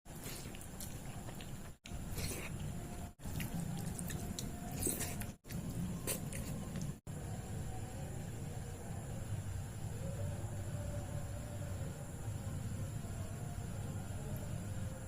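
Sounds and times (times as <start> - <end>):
wet chewing: 0.1 - 7.0.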